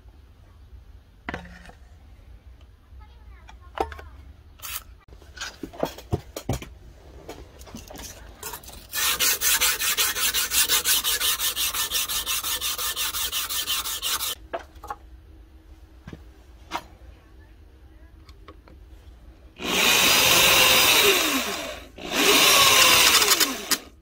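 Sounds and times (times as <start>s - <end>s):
hand scrubbing steel axe head: 8.6s - 14.4s.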